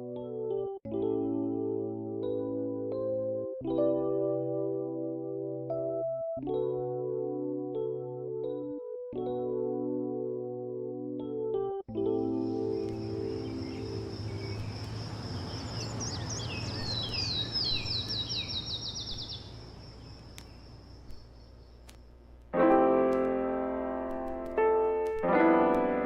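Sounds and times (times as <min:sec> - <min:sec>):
background music: 0:00.0 - 0:14.8, 0:22.6 - 0:26.0
piano music: 0:00.0 - 0:19.4, 0:22.6 - 0:26.0
hiss and low hum: 0:12.5 - 0:25.2
quick high bird-like chirps: 0:15.6 - 0:19.8.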